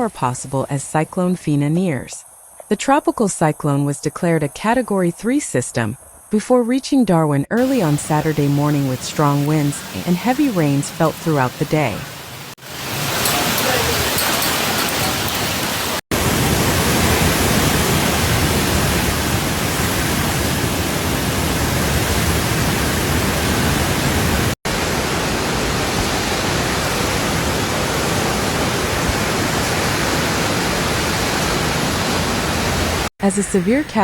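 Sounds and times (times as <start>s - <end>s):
heavy rain: 7.6s - 33.1s.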